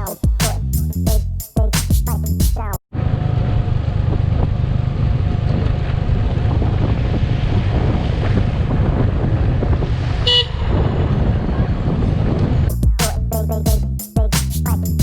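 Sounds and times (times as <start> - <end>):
motorcycle engine: 2.9 - 9.6
road noise: 2.9 - 12.8
wind buffeting microphone: 3.4 - 12.9.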